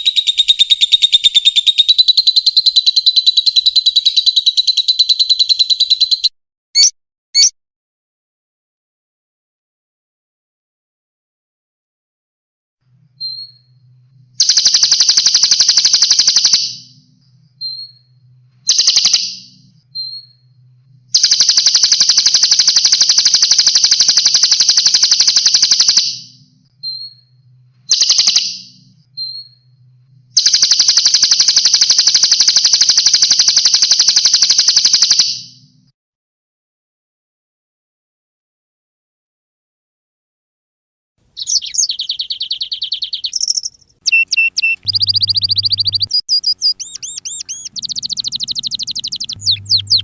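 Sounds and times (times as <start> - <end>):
high whistled bird notes: 0.0 - 7.5, 14.4 - 29.7, 41.4 - 50.0
songbird rapid trills: 14.4 - 17.0, 18.7 - 19.6, 21.2 - 26.4, 30.4 - 35.4, 41.4 - 50.0.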